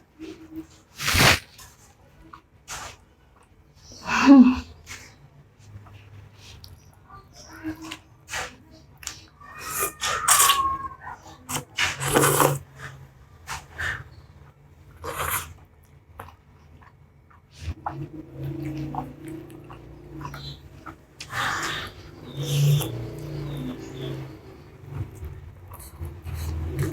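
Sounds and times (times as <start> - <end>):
noodle slurping: 1.0 - 1.4, 11.5 - 13.6, 15.0 - 15.6, 17.6 - 24.2
chewing and wet mouth sounds: 15.0 - 26.9.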